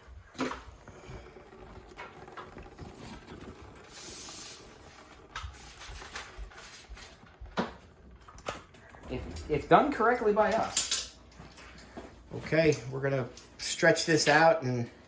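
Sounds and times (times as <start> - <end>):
liquid draining into bucket: 0.4 - 8.5
clicks and knocks of pipe fittings: 10.4 - 13.6.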